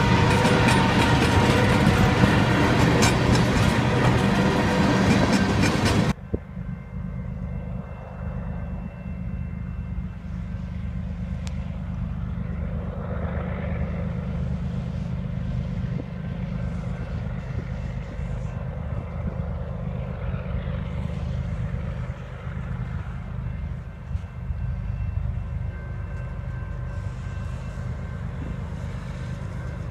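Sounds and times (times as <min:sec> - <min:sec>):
diesel locomotive engines droning: 0:00.0 - 0:29.9.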